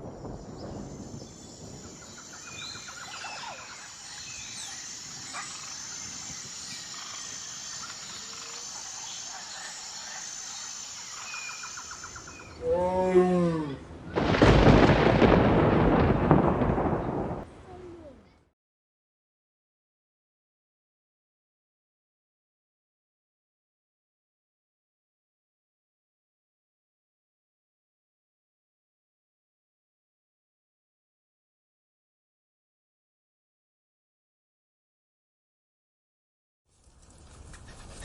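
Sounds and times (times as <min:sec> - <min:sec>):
high insect-like drone: 0:00.0 - 0:12.6
bird chirps and trills: 0:00.4 - 0:12.6.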